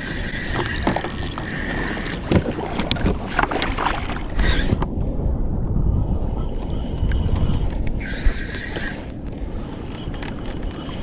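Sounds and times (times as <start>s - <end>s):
water sloshing around kayak: 0.0s - 4.9s, 6.6s - 11.0s
wind buffeting microphone: 0.0s - 11.0s
knocks and splashes: 0.5s - 4.8s.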